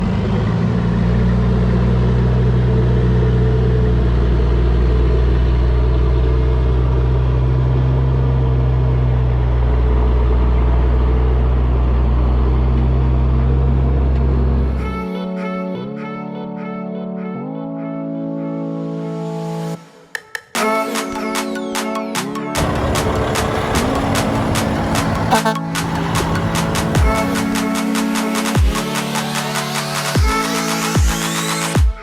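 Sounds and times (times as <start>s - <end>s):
diesel engine idling: 22.6s - 28.9s.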